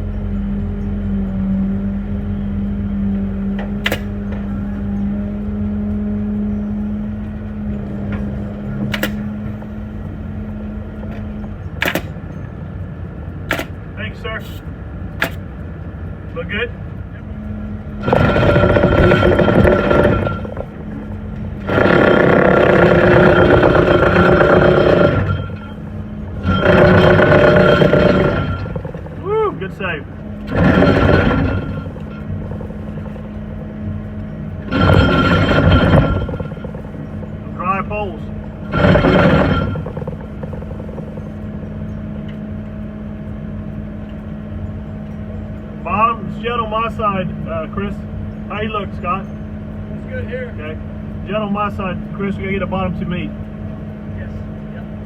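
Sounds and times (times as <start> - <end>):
small gasoline pump engine revving: 18.0 - 33.6, 34.6 - 41.4.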